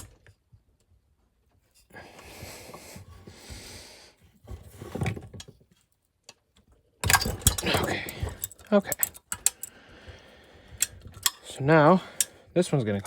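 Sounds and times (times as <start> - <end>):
metal tools clinking: 7.0 - 9.7, 10.8 - 12.4.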